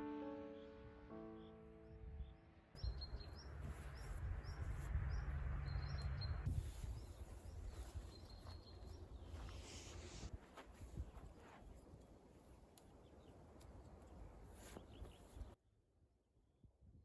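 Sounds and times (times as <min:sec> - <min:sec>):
low rumble: 0:02.2 - 0:06.8.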